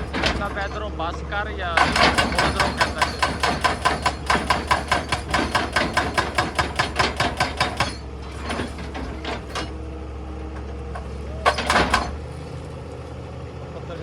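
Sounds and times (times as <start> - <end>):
hydraulic breaker hammering stone: 0.0 - 9.7, 11.4 - 12.2
excavator engine running: 0.0 - 14.0.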